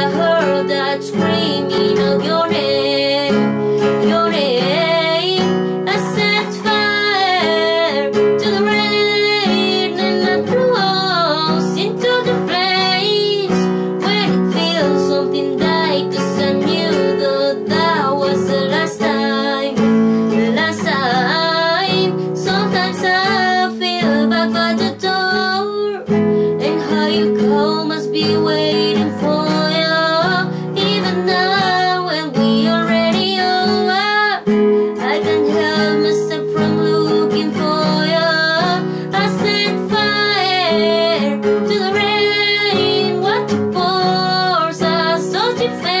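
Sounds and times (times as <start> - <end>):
strummed acoustic guitar: 0.0 - 46.0
woman singing pop ballad: 0.0 - 46.0.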